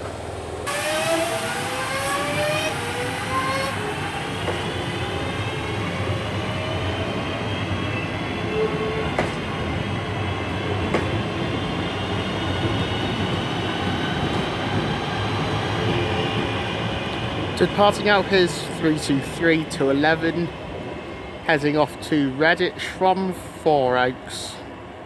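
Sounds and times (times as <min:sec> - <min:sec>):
electric train traction whine: 0:00.3 - 0:18.8
train running rumble: 0:08.8 - 0:23.6.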